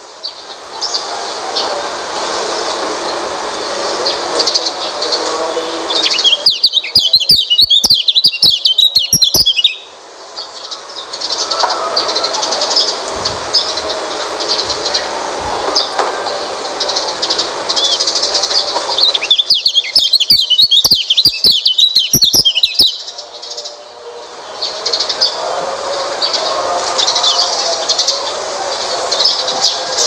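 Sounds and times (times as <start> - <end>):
bird twittering: 5.9 - 9.9, 16.8 - 23.2
fast chirps with sharp clicks: 6.0 - 9.9, 17.3 - 23.1.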